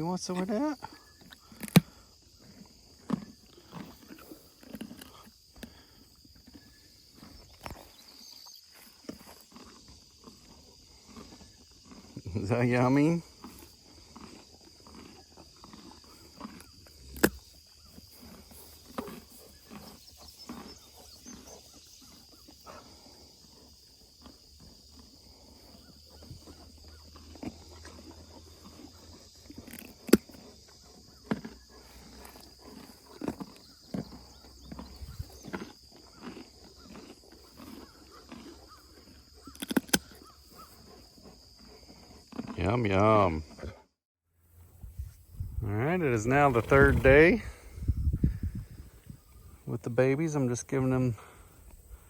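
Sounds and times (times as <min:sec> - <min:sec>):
high insect drone: 0:00.0 - 0:38.0
donkeys crunching feed: 0:00.0 - 0:43.8, 0:46.0 - 0:52.0.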